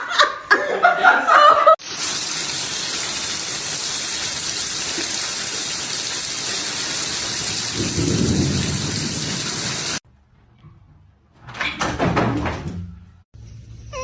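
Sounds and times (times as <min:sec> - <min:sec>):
heavy rain: 0:01.8 - 0:10.0
low rumble of thunder: 0:07.7 - 0:10.0.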